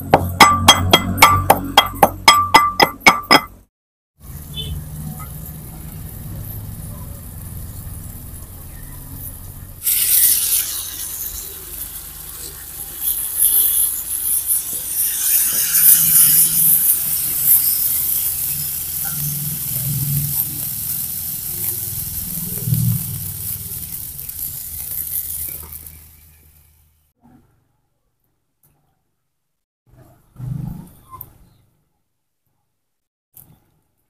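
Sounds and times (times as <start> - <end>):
curry sizzling in a wok: 4.2 - 27.1.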